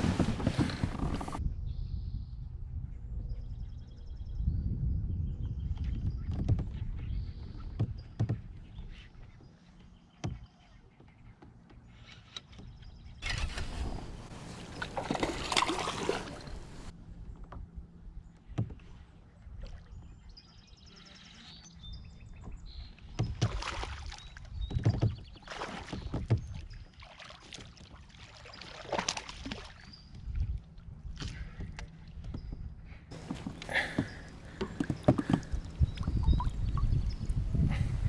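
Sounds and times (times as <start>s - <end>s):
water splashing against kayak: 0.0s - 1.4s, 13.2s - 16.9s, 22.9s - 32.4s, 33.1s - 38.0s.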